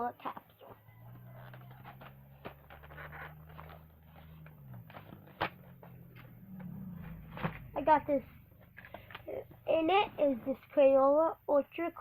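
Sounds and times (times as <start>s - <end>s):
clicks and rustles of handling: 0.2s - 6.7s, 8.6s - 9.3s.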